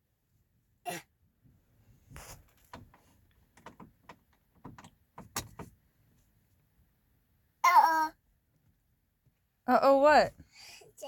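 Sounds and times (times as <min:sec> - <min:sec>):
light clicks and knocks: 0:02.1 - 0:05.9.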